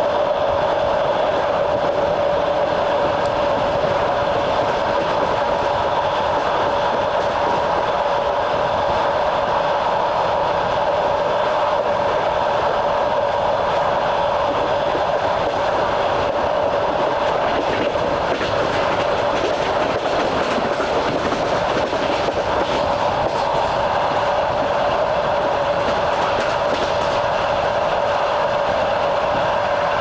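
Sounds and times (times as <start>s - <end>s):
train running noise with hum: 0.0s - 30.0s
train wheels clacking over rail joints: 1.4s - 8.3s, 14.5s - 28.8s.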